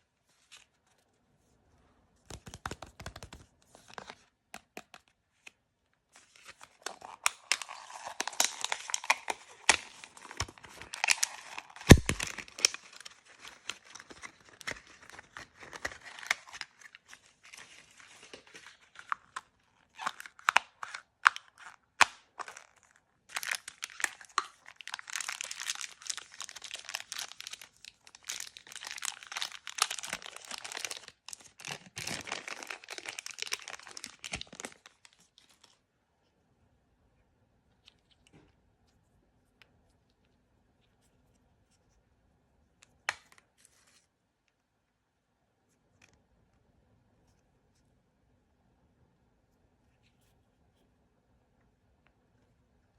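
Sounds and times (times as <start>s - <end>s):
plastic packaging crinkling: 6.2s - 35.8s.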